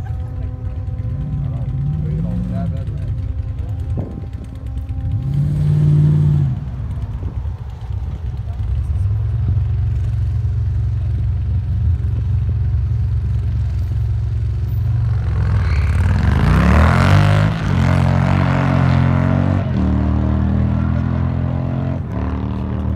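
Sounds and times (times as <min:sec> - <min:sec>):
drag racing engines: 0:00.0 - 0:22.9.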